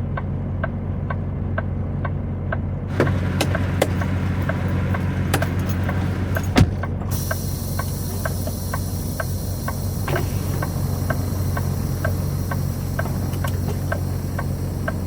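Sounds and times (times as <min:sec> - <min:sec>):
diesel truck engine idling: 0:01.2 - 0:15.0
light regular ticking: 0:02.9 - 0:15.0
high hiss: 0:07.1 - 0:15.0.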